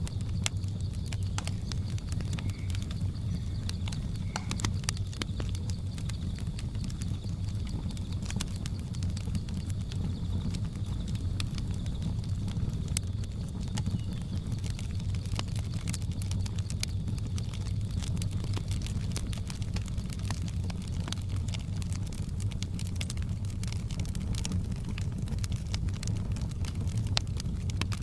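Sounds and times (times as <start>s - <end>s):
jungle ambience drone: 0.0s - 8.1s
fireplace fire crackling: 0.0s - 28.0s.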